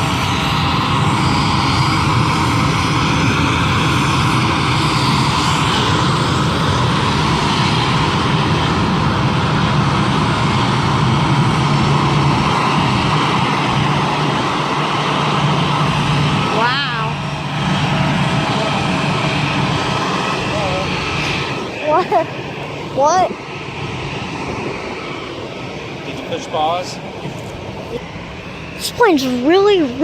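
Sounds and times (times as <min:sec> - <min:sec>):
airliner engines droning: 0:00.0 - 0:30.0.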